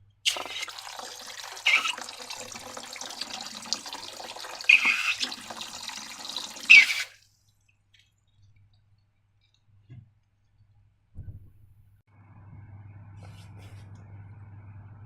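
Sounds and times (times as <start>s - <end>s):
liquid pouring and splashing: 0.3s - 8.1s.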